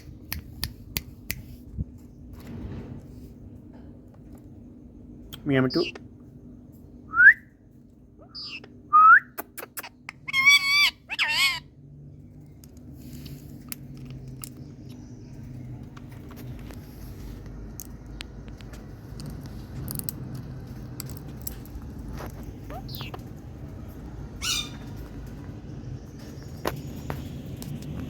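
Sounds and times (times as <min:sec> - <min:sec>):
parrot squawking: 0:08.2 - 0:08.7, 0:09.6 - 0:11.7, 0:22.7 - 0:23.2, 0:24.4 - 0:24.8
parrot wavering calls: 0:08.2 - 0:08.7, 0:10.1 - 0:11.7, 0:24.4 - 0:24.8.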